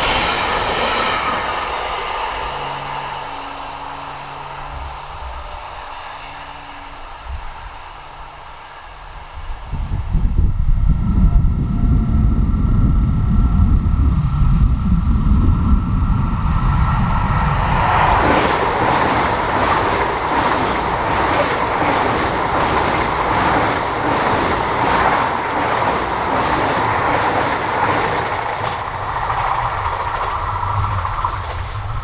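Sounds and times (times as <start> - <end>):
train wheels rolling on rails: 0.0 - 7.0, 7.8 - 32.0
rhythmic rail clatter: 0.0 - 32.0.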